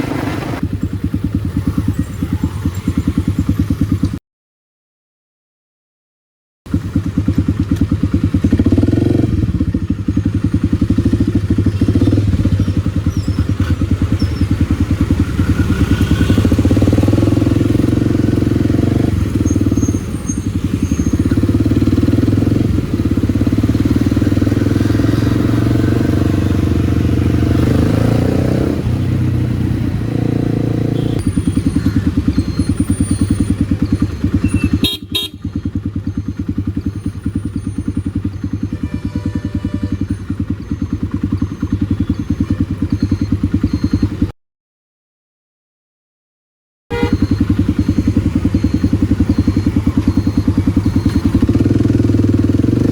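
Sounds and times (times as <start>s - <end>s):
motorcycle engine running: 0.0s - 4.2s, 6.7s - 44.3s, 46.9s - 52.9s.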